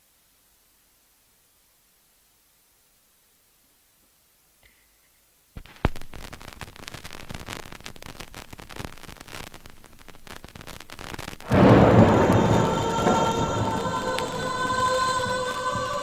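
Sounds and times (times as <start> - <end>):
rain patter: 5.6 - 16.0.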